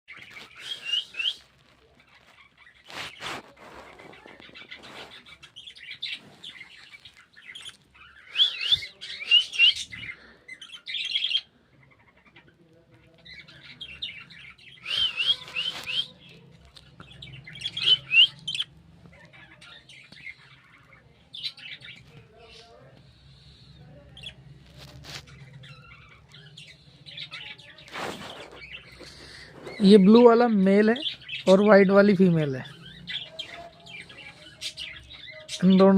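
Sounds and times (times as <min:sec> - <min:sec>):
budgerigars chirping and warbling: 0:00.1 - 0:35.9.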